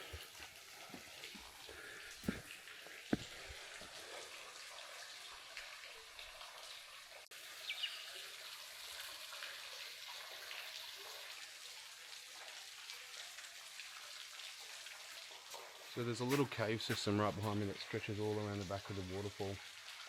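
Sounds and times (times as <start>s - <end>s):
small waterfall trickling: 0.0s - 20.0s
bird chirping: 7.6s - 8.1s.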